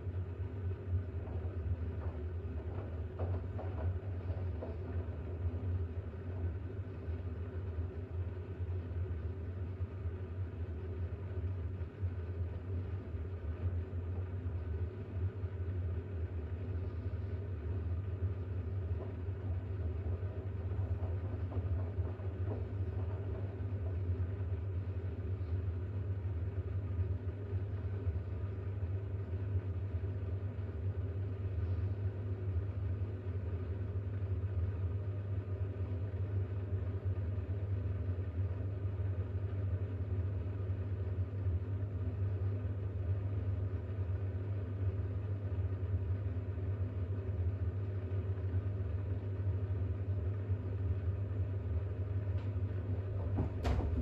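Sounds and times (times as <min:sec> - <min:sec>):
washing machine humming: 0:00.0 - 0:54.0.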